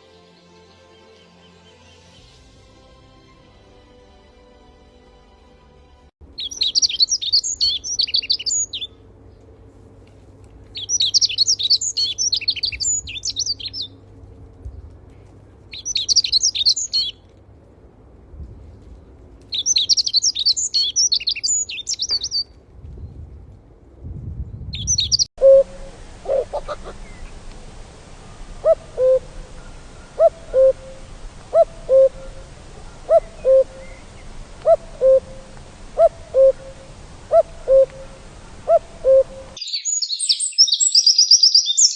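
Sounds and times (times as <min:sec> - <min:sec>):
songbird warbling: 0:06.4 - 0:09.0, 0:10.8 - 0:13.9, 0:15.7 - 0:17.2, 0:19.5 - 0:22.4, 0:24.8 - 0:41.9
owl hooting: 0:25.4 - 0:27.4, 0:28.2 - 0:41.9.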